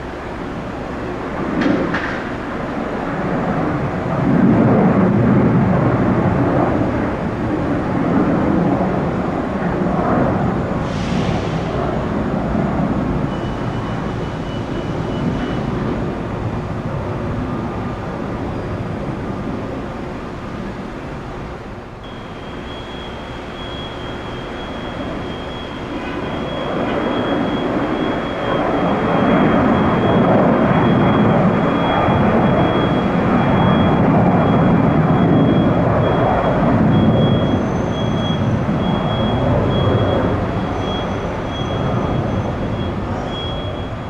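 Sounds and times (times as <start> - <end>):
wind rumble on microphone: 0.0 - 22.0, 24.0 - 44.0
jet engines rushing: 0.0 - 44.0
thin high whine: 8.8 - 44.0.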